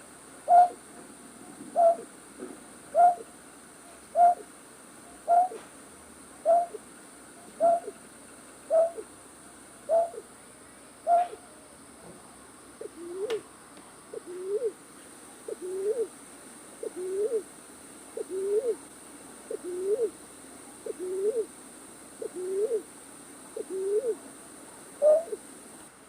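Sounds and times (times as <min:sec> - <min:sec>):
night bird hooting call: 0:00.4 - 0:00.8, 0:01.7 - 0:02.1, 0:02.9 - 0:03.3, 0:04.1 - 0:04.5, 0:05.1 - 0:05.6, 0:06.4 - 0:06.8, 0:07.5 - 0:08.0, 0:08.7 - 0:09.1, 0:09.8 - 0:10.3, 0:11.0 - 0:11.6, 0:12.8 - 0:13.4, 0:14.1 - 0:14.8, 0:15.5 - 0:16.1, 0:16.8 - 0:17.5, 0:18.2 - 0:18.8, 0:19.5 - 0:20.2, 0:20.8 - 0:21.5, 0:22.2 - 0:22.9, 0:23.6 - 0:24.2, 0:25.0 - 0:25.4.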